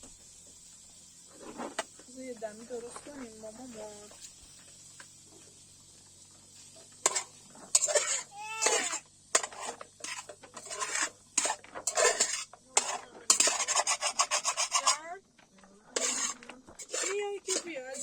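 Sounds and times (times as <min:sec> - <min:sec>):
spoon scraping a metal pot: 0:07.0 - 0:15.1, 0:16.0 - 0:18.0.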